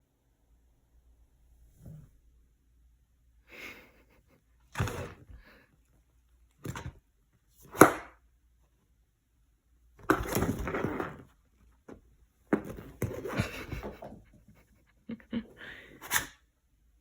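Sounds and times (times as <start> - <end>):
cat scuffling: 10.0 - 14.9.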